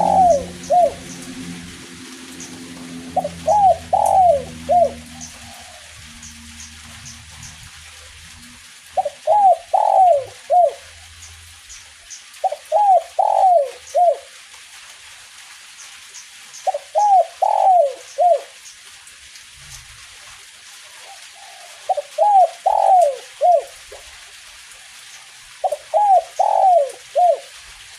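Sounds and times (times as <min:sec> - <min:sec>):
dove cooing: 0:00.0 - 0:06.7, 0:09.0 - 0:10.9, 0:12.4 - 0:14.3, 0:16.7 - 0:18.5, 0:21.0 - 0:24.0, 0:25.6 - 0:27.6.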